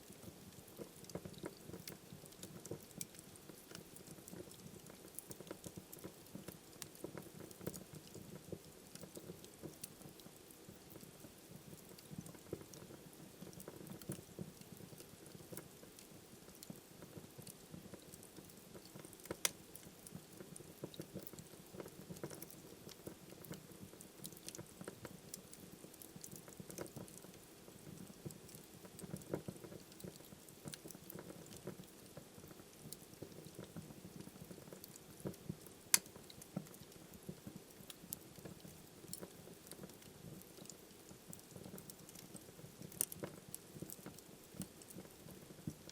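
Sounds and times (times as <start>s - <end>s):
fire crackling and popping: 0.0s - 45.9s.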